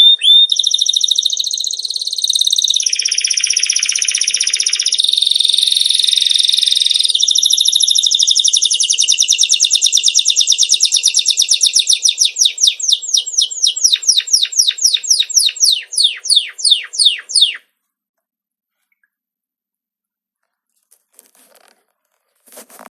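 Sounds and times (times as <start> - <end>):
songbird trill and whistles: 0.0 - 17.7.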